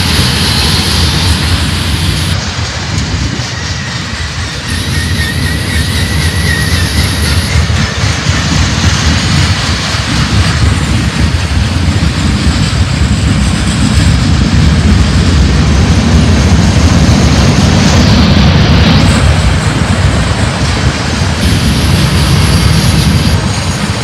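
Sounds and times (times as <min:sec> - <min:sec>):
freight train wheels rumbling: 0:00.0 - 0:24.0
high squeal: 0:03.4 - 0:08.5.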